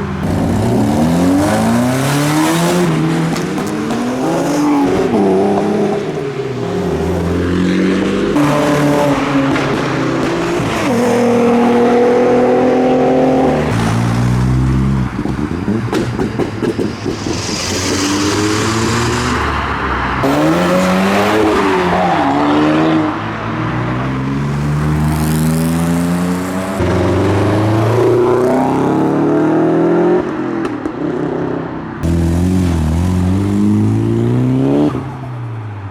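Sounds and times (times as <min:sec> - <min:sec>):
cars accelerating hard: 0:00.0 - 0:35.7
high hiss: 0:16.8 - 0:19.7.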